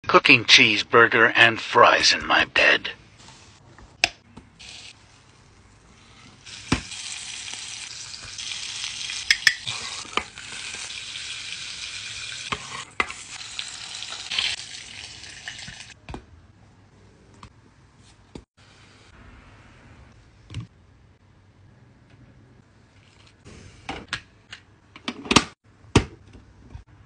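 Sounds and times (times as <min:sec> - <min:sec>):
burger patty sizzling: 0:04.6 - 0:16.0.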